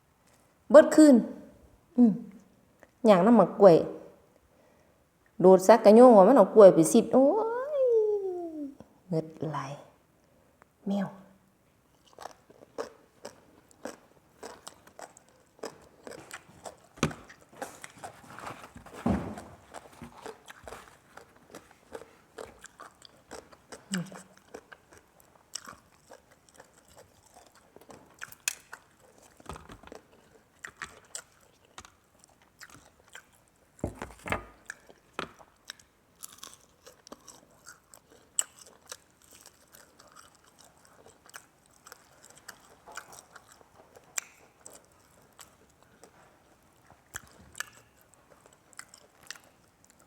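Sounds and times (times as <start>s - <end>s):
person crunching and chewing food: 11.9s - 50.0s.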